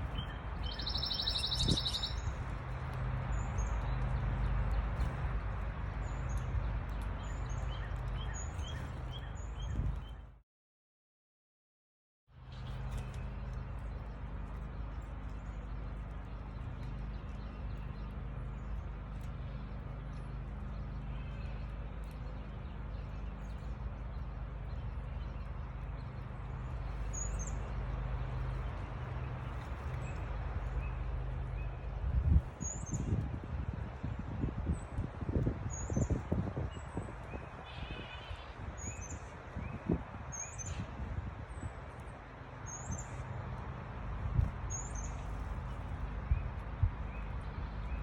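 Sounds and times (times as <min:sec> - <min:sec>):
high bird chirps: 0:00.6 - 0:02.3.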